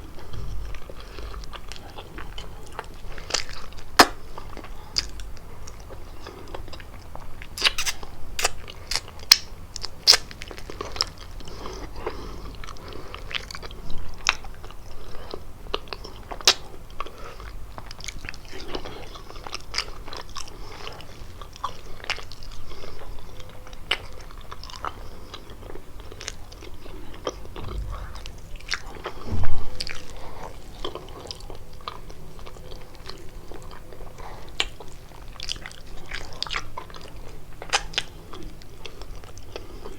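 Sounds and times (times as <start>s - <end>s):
chewing crunchy pastry: 0.0s - 39.9s
thump: 29.3s - 29.7s.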